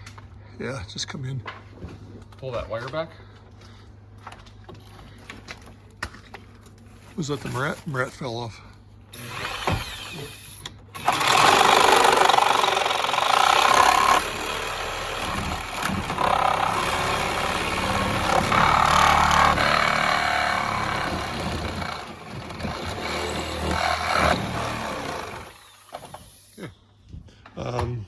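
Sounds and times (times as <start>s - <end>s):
power tool running: 9.1s - 26.6s.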